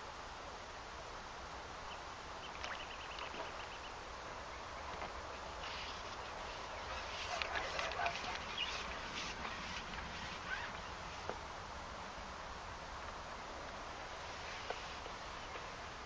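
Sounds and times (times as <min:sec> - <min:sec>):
steady outdoor hiss: 0:00.0 - 0:16.0
small birds chirping: 0:01.8 - 0:11.5.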